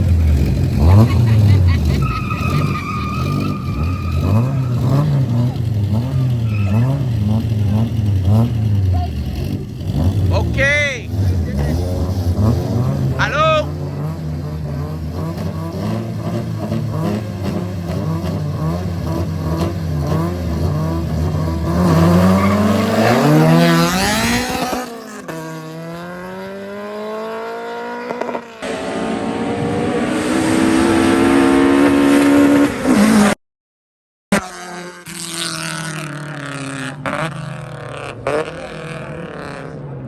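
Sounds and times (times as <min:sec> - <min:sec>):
race car engine revving: 0:00.0 - 0:33.4, 0:34.4 - 0:40.0.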